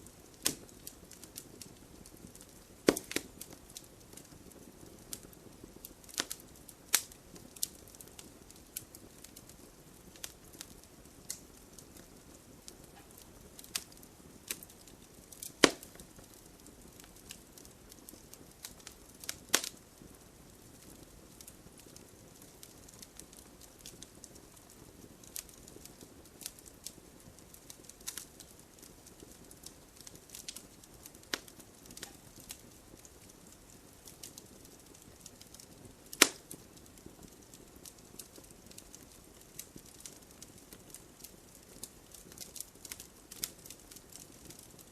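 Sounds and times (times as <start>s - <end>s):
faint steady hiss: 0.0s - 44.9s
wood fire crackling: 0.0s - 44.9s
loud log pops: 2.9s - 3.2s.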